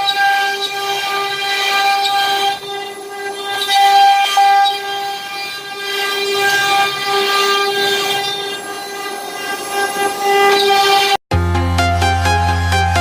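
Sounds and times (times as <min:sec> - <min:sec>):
cnc router spindle whining: 0:00.0 - 0:11.2
electronic dance music: 0:10.5 - 0:13.0.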